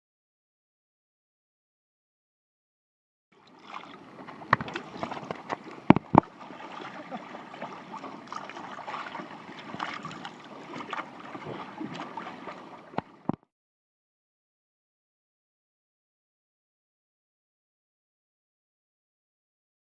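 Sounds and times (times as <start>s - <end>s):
water splashing around kayak: 3.4s - 13.5s.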